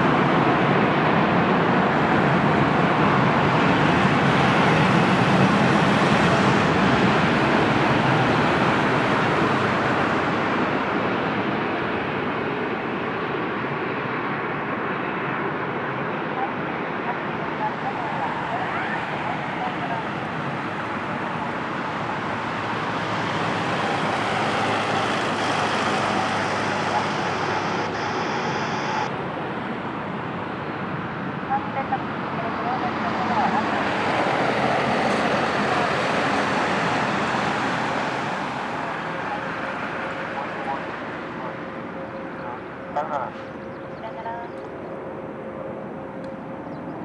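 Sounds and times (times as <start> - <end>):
airliner jet engine rushing: 1.9 - 31.5
faint whine: 16.4 - 29.2.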